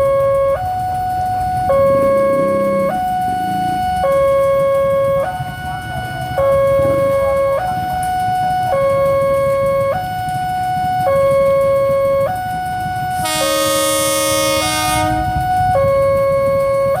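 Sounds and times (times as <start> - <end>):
level-crossing two-tone alarm: 0.0 - 17.0
road traffic rumble: 0.0 - 17.0.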